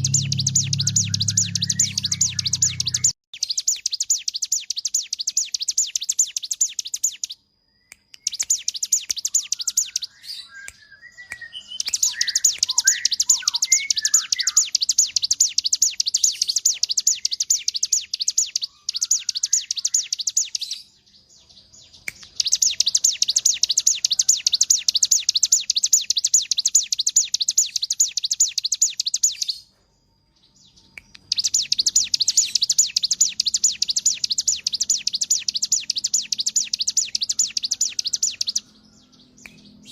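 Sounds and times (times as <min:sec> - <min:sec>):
bird high chattering trill: 0:00.0 - 0:07.3, 0:11.4 - 0:20.8, 0:31.2 - 0:38.7
low bird chirps: 0:00.0 - 0:39.9.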